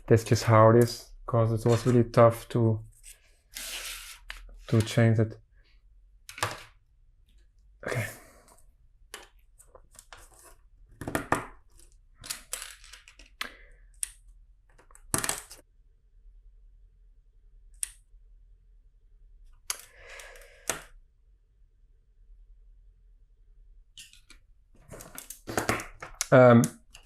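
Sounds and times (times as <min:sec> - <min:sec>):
plastic pieces clicking: 0:11.1 - 0:15.6, 0:24.0 - 0:27.0.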